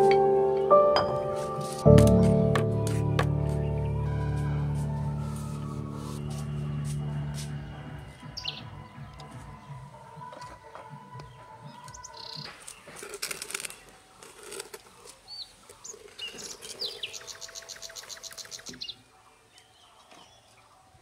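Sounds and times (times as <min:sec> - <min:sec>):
birds chirping: 0:03.0 - 0:14.2, 0:14.8 - 0:21.0
bird trill: 0:08.2 - 0:08.7, 0:16.2 - 0:19.0.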